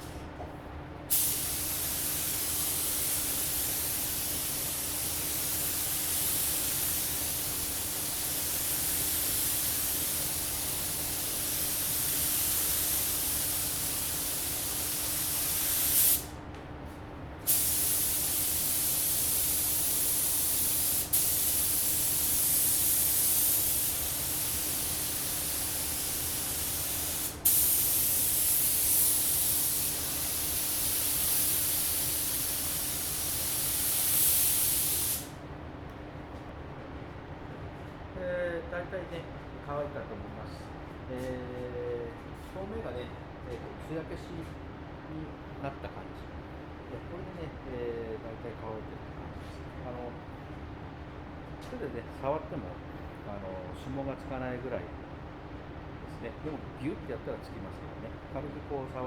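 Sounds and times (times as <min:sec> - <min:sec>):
paint spray gun hissing: 0:01.1 - 0:16.3, 0:17.5 - 0:35.3.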